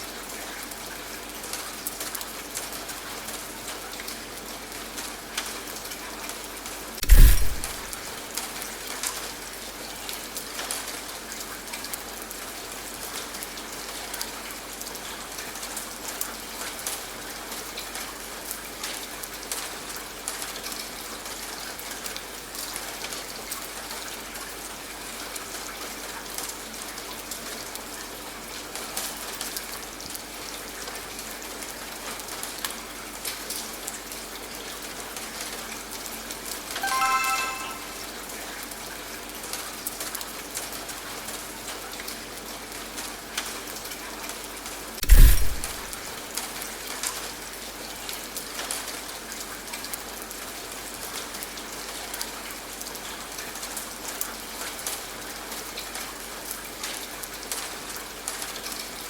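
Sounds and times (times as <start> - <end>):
steady rain falling: 0.0 - 35.5, 40.0 - 59.0
short pitched timer chime: 36.8 - 38.2.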